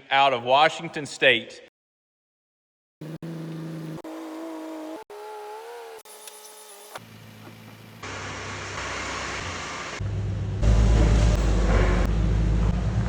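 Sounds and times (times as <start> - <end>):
vehicle engine running: 7.0 - 13.0.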